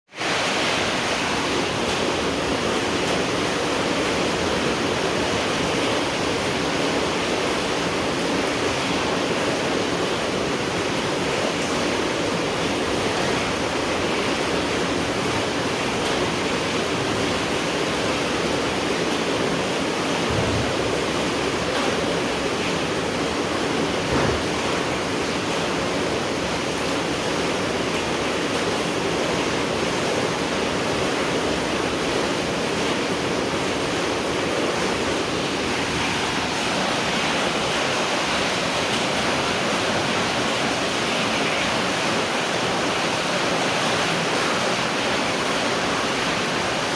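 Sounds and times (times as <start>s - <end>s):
rain falling: 0.1s - 46.9s
low thumps: 20.2s - 21.3s.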